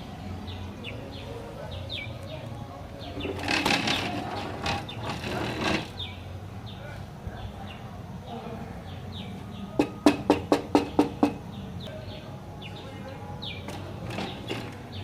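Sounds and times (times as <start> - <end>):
rustling noise: 3.2 - 6.0.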